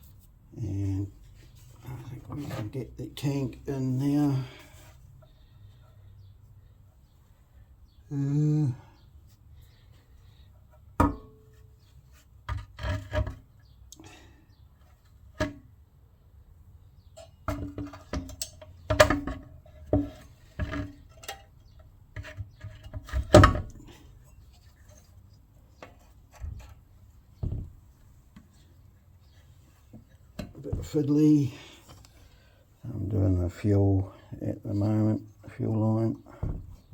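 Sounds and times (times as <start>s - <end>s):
knocks and clunks of fuel tank: 36.4s - 36.9s.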